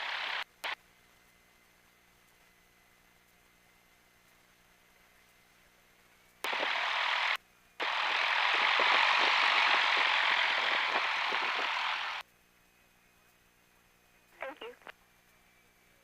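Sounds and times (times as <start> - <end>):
radio static hiss: 0.0 - 0.8, 6.4 - 12.2, 14.3 - 15.0.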